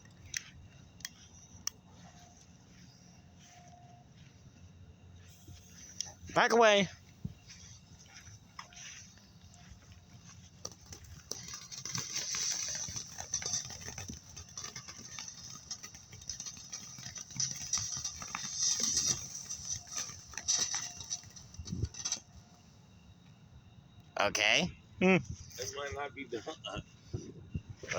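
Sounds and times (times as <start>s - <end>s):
firework hissing and crackling: 5.3s - 22.9s.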